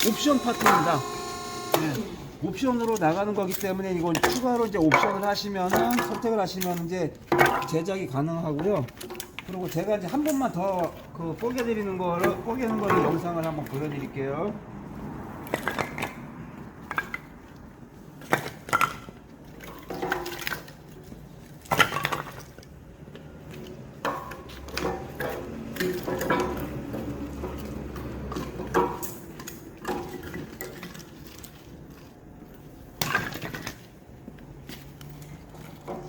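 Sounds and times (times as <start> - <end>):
log splitter machine hum: 0.0 - 2.6
wood splitting cracks: 0.0 - 14.0.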